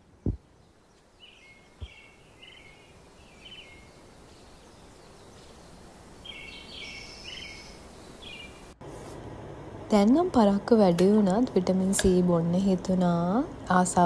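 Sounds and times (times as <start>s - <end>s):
birds chirping: 0.0s - 8.8s.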